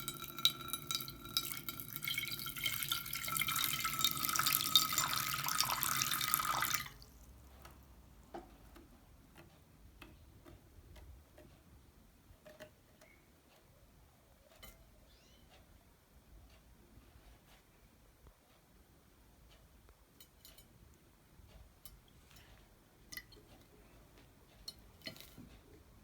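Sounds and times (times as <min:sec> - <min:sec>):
bird splashing water: 0:00.0 - 0:07.1.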